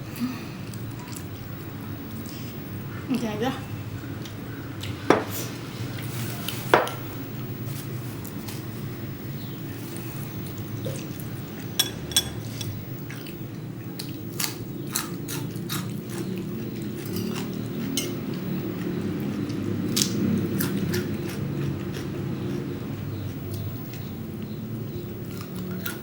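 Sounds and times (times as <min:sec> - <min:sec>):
chewing: 0:00.7 - 0:02.5, 0:12.4 - 0:26.0.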